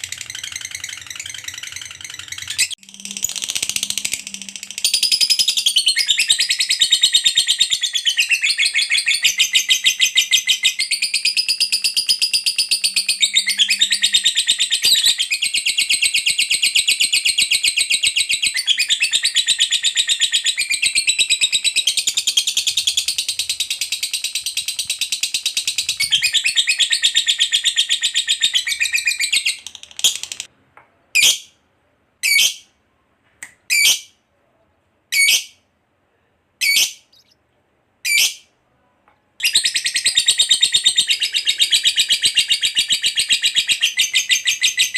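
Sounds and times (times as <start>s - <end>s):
bird chattering trill: 0.0s - 30.5s.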